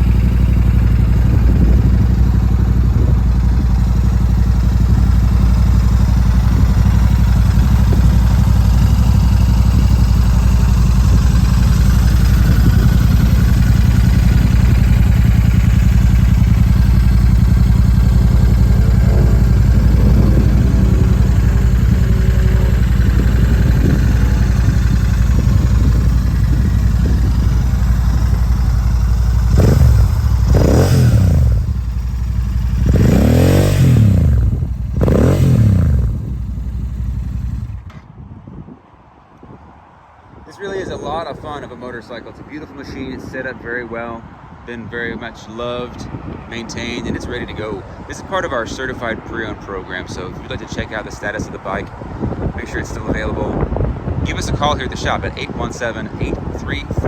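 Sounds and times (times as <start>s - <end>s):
engine revving: 0.0s - 37.8s
motorcycle engine idling: 0.0s - 38.1s.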